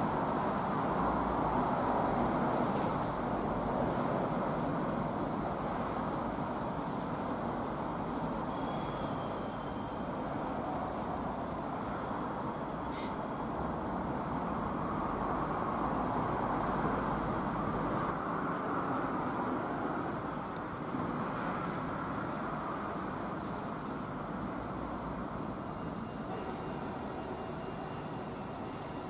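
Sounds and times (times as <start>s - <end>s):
electric trains running slowly: 0.0s - 29.0s
brief high squeal: 8.5s - 10.0s, 11.0s - 11.8s, 12.8s - 13.2s
short hiss: 12.9s - 13.2s, 26.3s - 29.0s.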